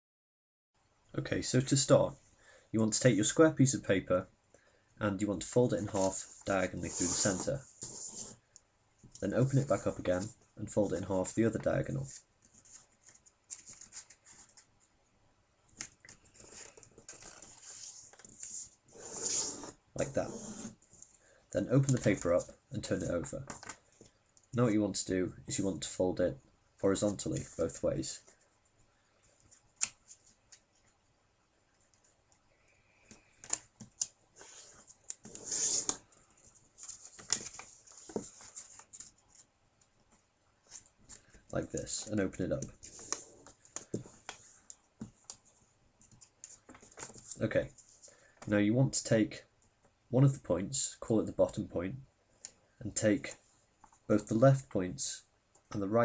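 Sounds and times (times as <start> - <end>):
paper rustling and crackling: 12.0 - 14.7, 33.4 - 39.5, 46.1 - 48.0.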